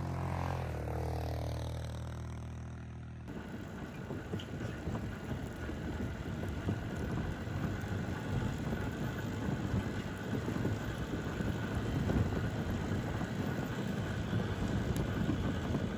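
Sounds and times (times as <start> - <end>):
wind buffeting microphone: 3.3 - 15.9.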